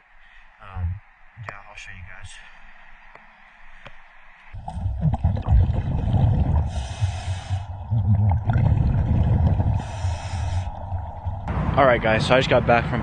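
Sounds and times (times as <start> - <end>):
scuba exhaust bubbles hissing: 4.5 - 11.6
low rumble of moving water: 4.5 - 13.0.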